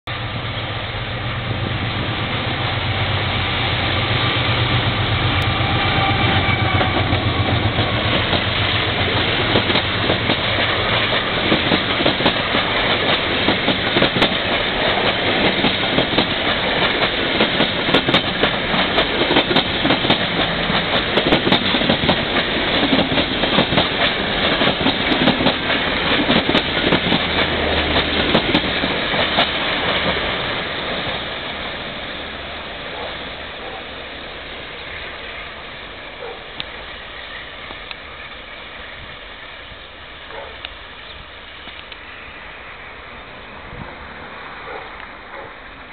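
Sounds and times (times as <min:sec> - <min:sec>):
diesel locomotive engine droning: 0:00.1 - 0:45.9
train wheels clickety-clack: 0:01.6 - 0:31.3.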